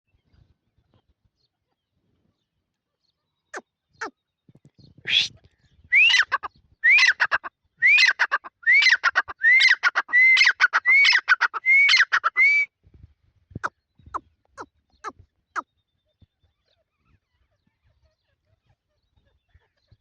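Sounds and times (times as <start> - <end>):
francolin calling: 6.0 - 12.6.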